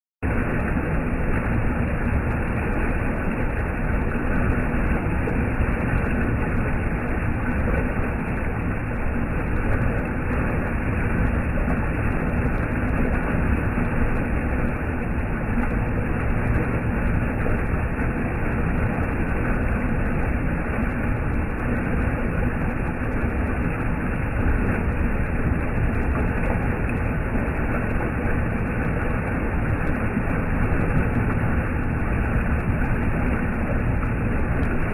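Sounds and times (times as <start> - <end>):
stream water rushing: 0.2 - 34.9.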